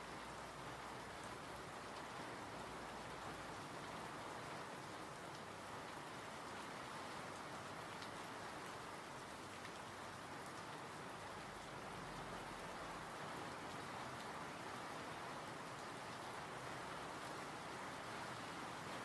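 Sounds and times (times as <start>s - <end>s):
steady rainfall: 0.0s - 19.0s
faint raindrop ticks: 3.0s - 12.7s, 13.4s - 17.5s.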